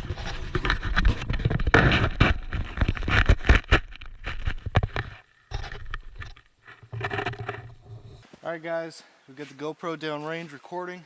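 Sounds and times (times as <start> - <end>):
knocks and crackles: 0.0 - 8.4
snow crunching against camera case: 0.0 - 8.5.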